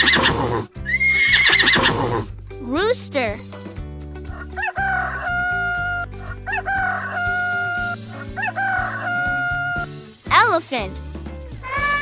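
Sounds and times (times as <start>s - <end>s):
background music: 0.0s - 12.0s
rooster crowing: 4.6s - 9.8s.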